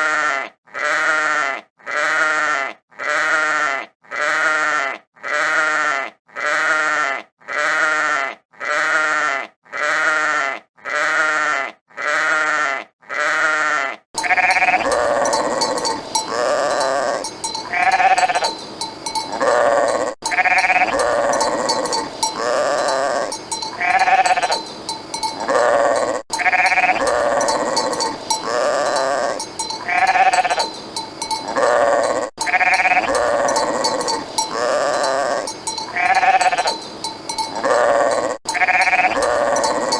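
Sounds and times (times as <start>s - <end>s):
livestock bleating: 0.0s - 39.9s
steady background noise: 14.2s - 39.9s.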